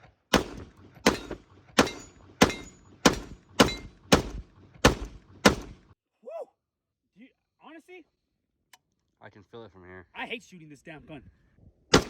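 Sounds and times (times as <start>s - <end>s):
pistol shots: 0.3s - 5.9s.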